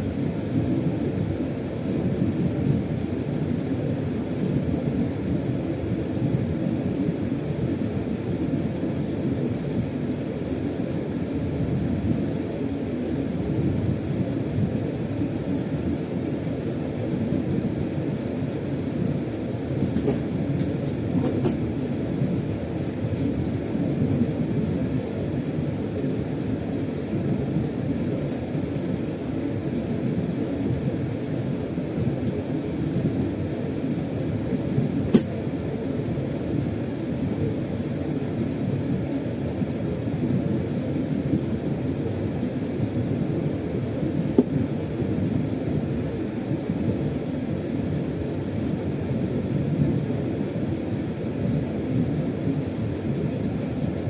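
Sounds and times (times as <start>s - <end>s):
train rumbling along track: 19.8s - 21.6s.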